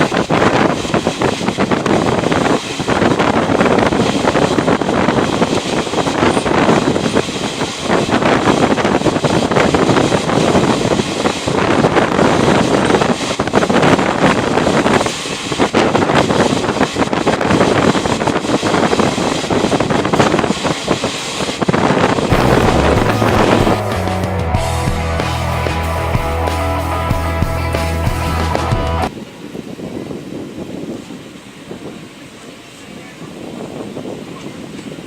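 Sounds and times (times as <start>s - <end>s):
train wheels clattering on track: 0.0s - 23.8s
wind buffeting microphone: 0.0s - 35.0s
music: 22.3s - 29.1s.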